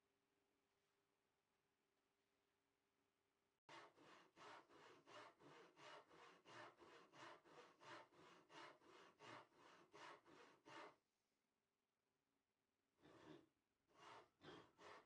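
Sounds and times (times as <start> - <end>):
hand saw cutting wood: 3.7 - 11.0, 13.0 - 15.0.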